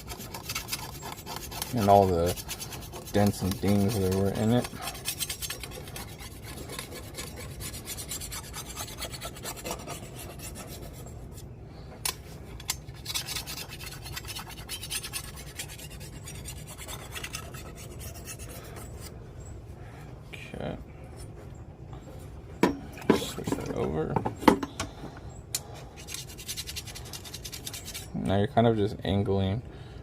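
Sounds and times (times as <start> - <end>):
stone scraping on steel blade: 0.0 - 11.4, 12.1 - 19.2, 26.0 - 28.2.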